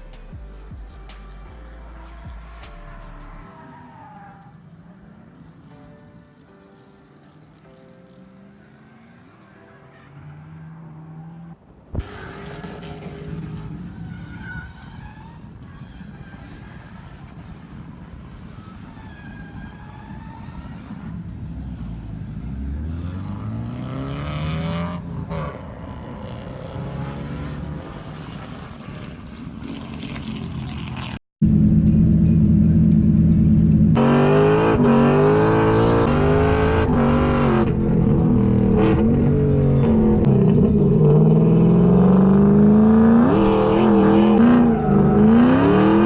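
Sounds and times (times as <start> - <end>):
car engines revving hard: 8.3 - 31.2, 33.8 - 46.0.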